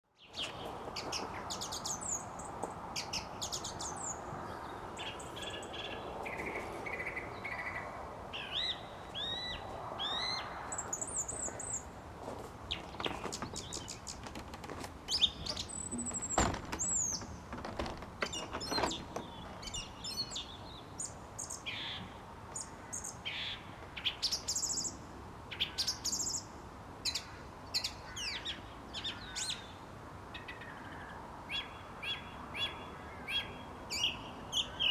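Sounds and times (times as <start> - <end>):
low background noise: 0.1 - 34.9
thrush singing whistles and chirps: 8.4 - 11.5
other birds calling: 12.6 - 24.8.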